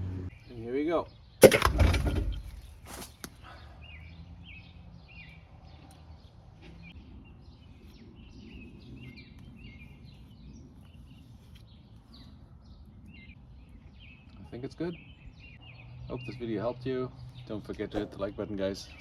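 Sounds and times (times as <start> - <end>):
low background rumble: 1.4 - 3.0.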